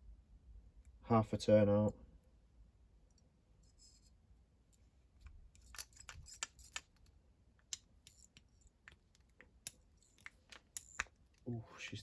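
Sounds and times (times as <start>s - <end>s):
small metallic clicks: 4.7s - 11.4s
screwdriver scraping: 5.6s - 7.0s.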